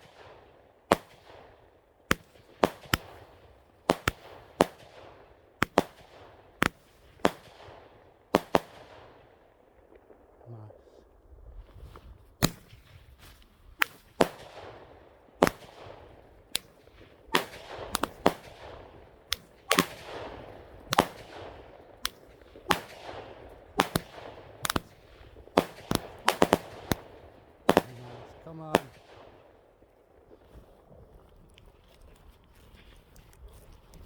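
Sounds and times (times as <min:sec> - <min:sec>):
fireworks bangs: 0:12.3 - 0:29.6.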